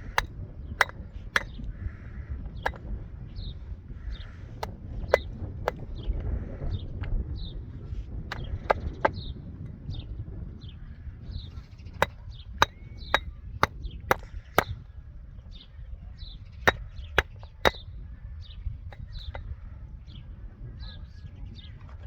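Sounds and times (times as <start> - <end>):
hand tool striking blows: 0.1 - 1.6.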